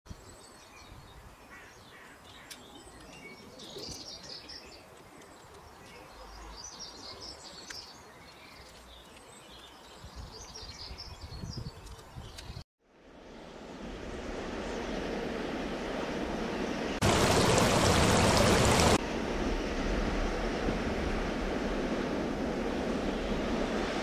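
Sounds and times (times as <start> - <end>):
small birds chirping: 0.3 - 12.6.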